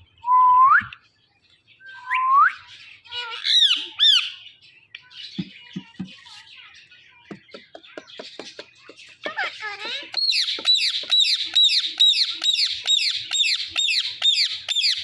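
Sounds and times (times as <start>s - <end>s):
parrot squawking: 3.1s - 4.4s, 9.0s - 15.0s
parrot chattering: 7.4s - 15.0s.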